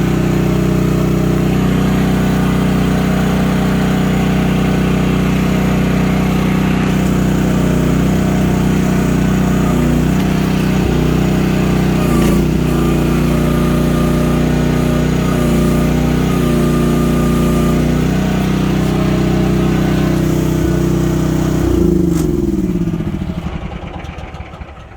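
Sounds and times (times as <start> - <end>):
excavator engine running: 0.0 - 24.9.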